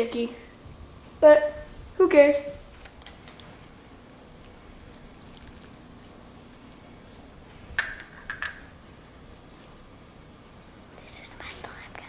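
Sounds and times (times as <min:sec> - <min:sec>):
hard object clinking: 0:03.1 - 0:05.7, 0:07.8 - 0:08.7.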